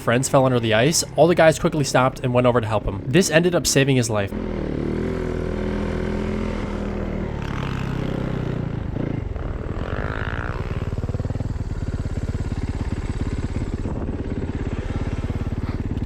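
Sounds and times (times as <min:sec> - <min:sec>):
snowmobile engine running: 0:00.0 - 0:16.0.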